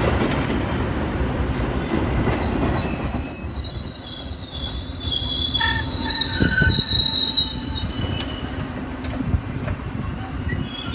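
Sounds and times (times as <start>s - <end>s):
low train rumble: 0.0s - 10.9s
train wheels squealing on rails: 0.0s - 10.9s.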